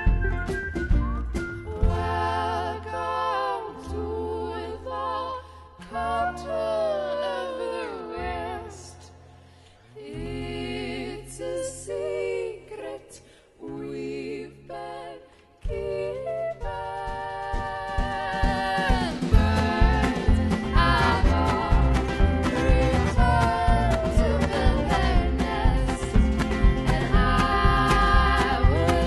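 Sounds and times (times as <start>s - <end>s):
low bass notes: 0.0s - 3.3s, 18.4s - 29.0s
women singing in harmony: 1.7s - 29.0s.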